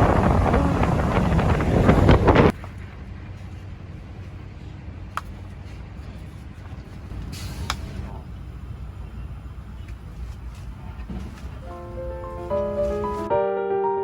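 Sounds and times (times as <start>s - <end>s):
wind buffeting microphone: 0.0s - 3.4s
road vehicle rumble from inside: 0.0s - 13.3s.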